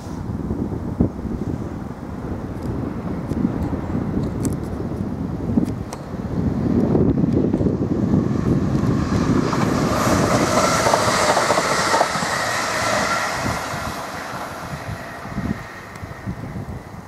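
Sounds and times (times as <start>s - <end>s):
train wheels clattering on rails: 8.4s - 16.2s.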